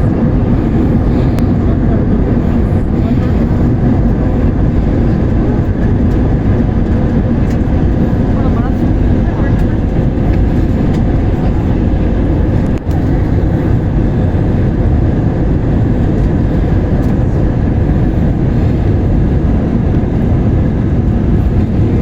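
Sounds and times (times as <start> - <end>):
airliner engines and rushing air: 0.0 - 22.0.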